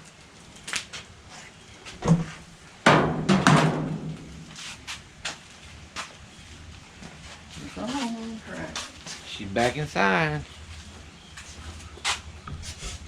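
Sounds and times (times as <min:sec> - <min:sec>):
sharp knocks and clunks: 0:02.0 - 0:04.3.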